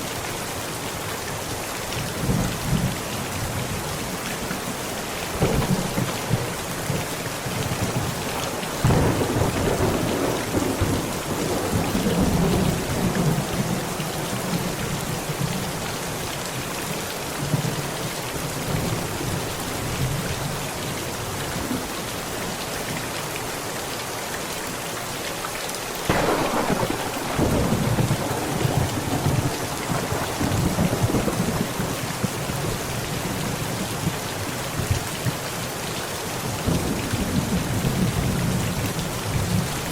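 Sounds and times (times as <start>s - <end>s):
heavy rain drumming on a tent: 0.0s - 39.9s
thunder: 5.3s - 13.8s, 26.1s - 32.3s.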